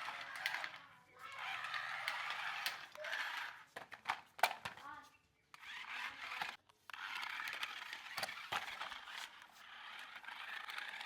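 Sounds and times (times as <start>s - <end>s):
toy car motor whirring: 0.0s - 4.9s, 5.5s - 11.0s.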